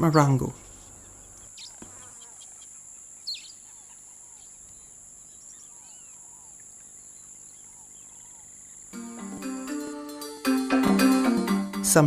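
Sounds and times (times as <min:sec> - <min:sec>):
bird chirps: 0:00.0 - 0:08.9
insects droning: 0:00.0 - 0:10.4.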